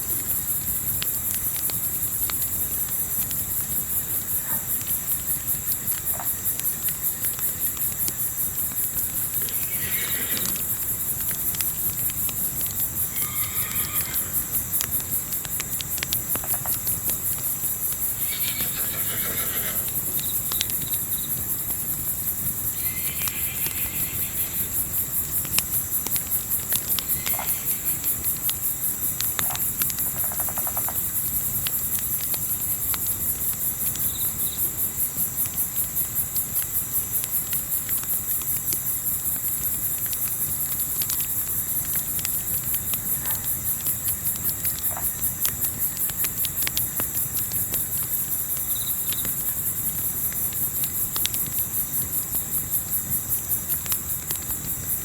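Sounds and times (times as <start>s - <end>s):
crackling campfire: 0.0s - 55.0s
crickets chirping: 0.0s - 55.0s.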